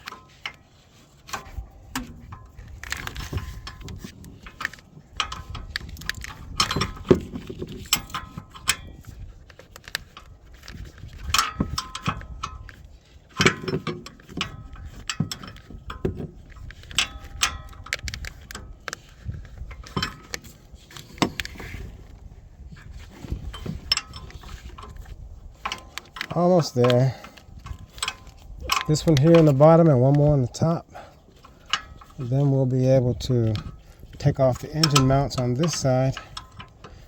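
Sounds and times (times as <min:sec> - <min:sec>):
hand tools clinking on metal: 0:25.6 - 0:37.0.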